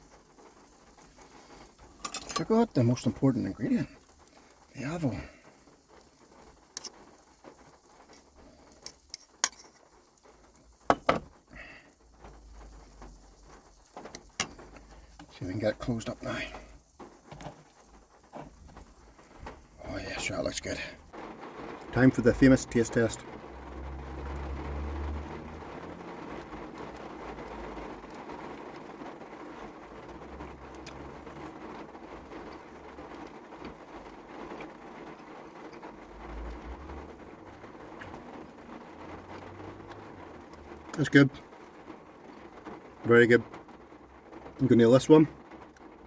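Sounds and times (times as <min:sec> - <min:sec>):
heavy rain on a van: 0:00.0 - 0:46.0
rain drop ticks: 0:00.0 - 0:46.0.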